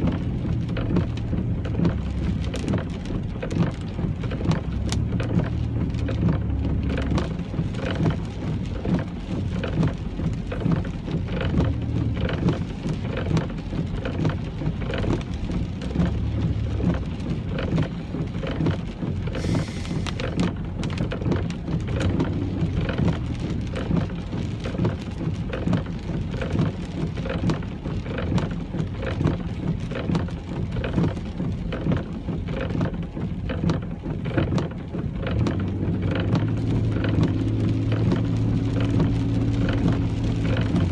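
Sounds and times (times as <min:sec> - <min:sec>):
car engine and tyres rumbling: 0:00.0 - 0:40.9
heavy rain on a car: 0:00.0 - 0:40.9
brief hiss: 0:19.4 - 0:20.2.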